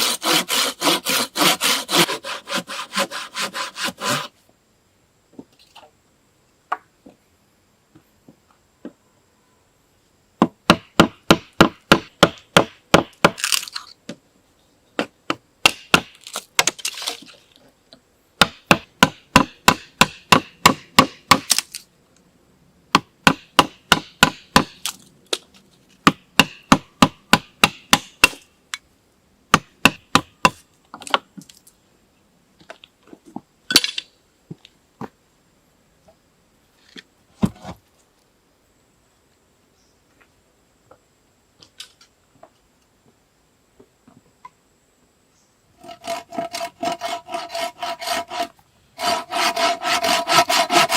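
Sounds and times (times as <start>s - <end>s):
sharp knocks on wood: 10.4s - 13.4s, 18.4s - 21.5s.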